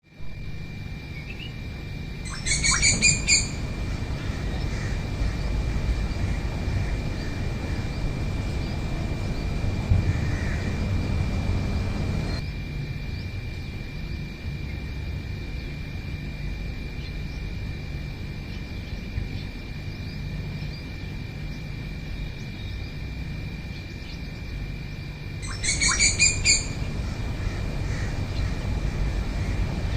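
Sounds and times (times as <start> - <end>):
wild birds calling: 1.0 - 12.5, 18.3 - 29.9
high thin whine: 1.7 - 12.4
low rumble: 2.3 - 13.6, 26.4 - 29.9.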